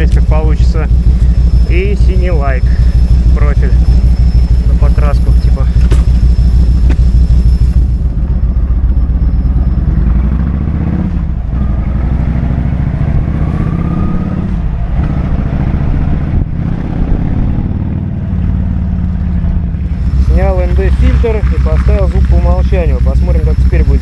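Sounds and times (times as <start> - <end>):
motorcycle engine running loud: 0.0 - 24.0.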